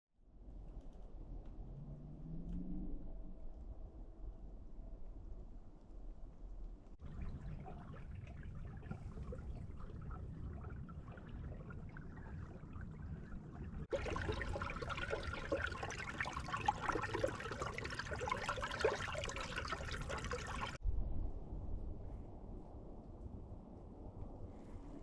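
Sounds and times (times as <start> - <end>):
low wind-like rumble: 0.2 - 25.0
water trickling and splashing: 7.0 - 20.8.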